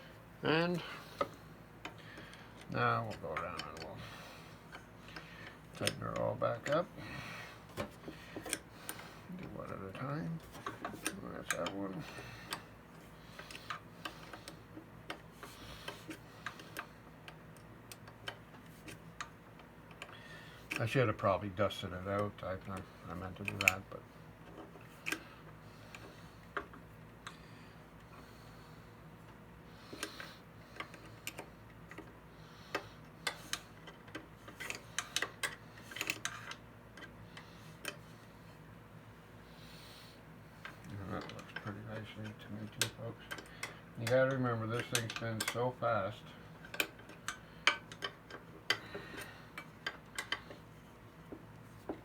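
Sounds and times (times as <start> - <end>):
hand tools clicking on metal: 40.6 - 45.7.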